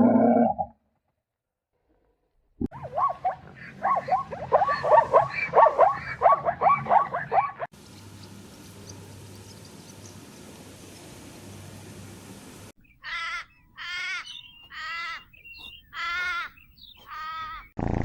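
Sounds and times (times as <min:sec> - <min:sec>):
faint steady hiss: 0:07.8 - 0:12.7.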